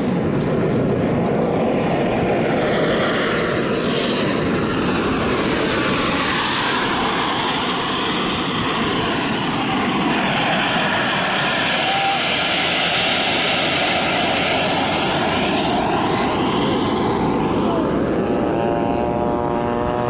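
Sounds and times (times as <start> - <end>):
model airplane engine: 0.0 - 20.0
high whine sliding in pitch: 14.8 - 20.0.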